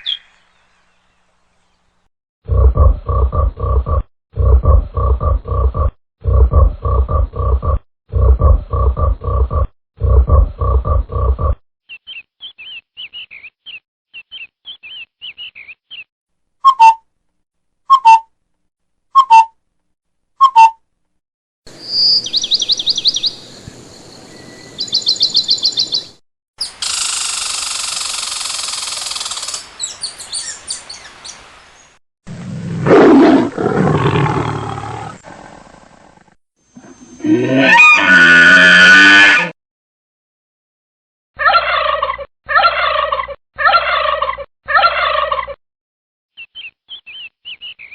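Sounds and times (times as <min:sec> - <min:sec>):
bird chirps: 0:00.0 - 0:01.8, 0:11.9 - 0:17.0, 0:21.7 - 0:31.9, 0:46.3 - 0:47.9
animal roar: 0:32.3 - 0:39.6
loud animal call: 0:36.8 - 0:39.6.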